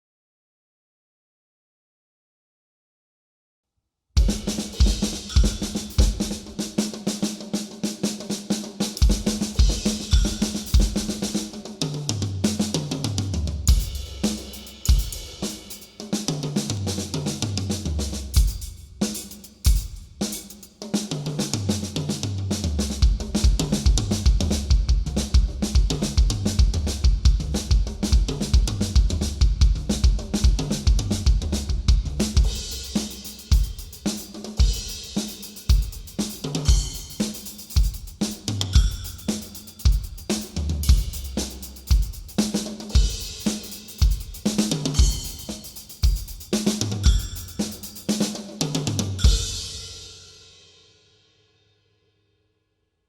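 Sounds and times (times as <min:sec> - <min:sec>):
cymbal and hi-hat wash: 0:04.2 - 0:11.7, 0:13.7 - 0:22.0, 0:22.9 - 0:51.2
snare and tom fills: 0:04.2 - 0:50.2
bass drum strokes: 0:22.7 - 0:32.9.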